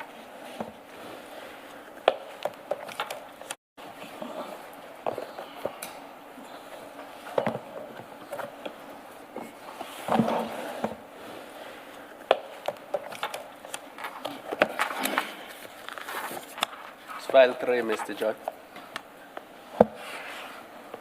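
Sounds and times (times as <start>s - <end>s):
paper rustling: 13.1s - 18.3s.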